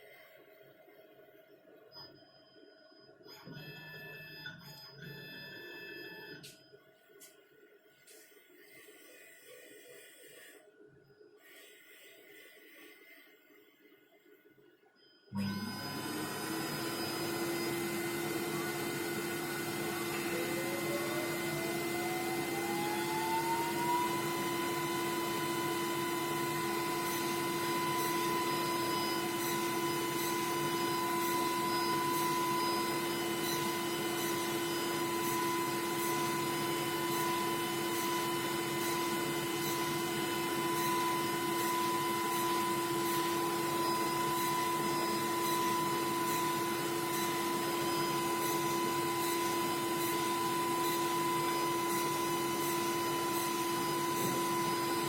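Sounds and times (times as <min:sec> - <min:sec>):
drilling machine spindle whine: 0:15.3 - 0:55.0.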